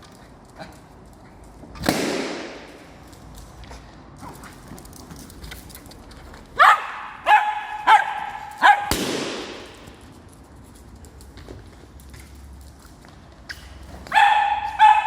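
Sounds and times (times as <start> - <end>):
dog barking: 6.6 - 8.9, 14.1 - 15.0
balloon bursting: 8.8 - 9.8.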